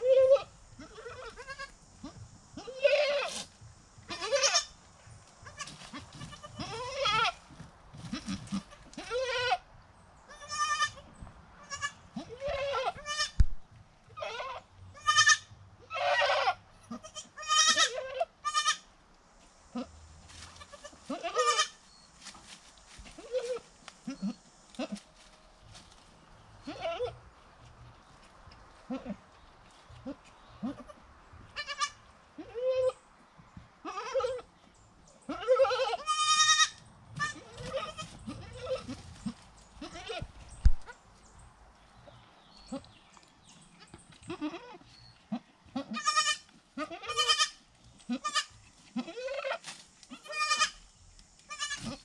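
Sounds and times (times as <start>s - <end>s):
goats bleating: 0.0s - 3.4s, 4.1s - 4.7s, 5.4s - 7.4s, 8.0s - 9.6s, 11.6s - 13.4s, 14.2s - 18.8s, 20.5s - 21.8s, 26.6s - 27.2s, 30.0s - 33.0s, 33.8s - 34.4s, 35.3s - 40.3s, 44.2s - 50.8s, 51.5s - 52.0s.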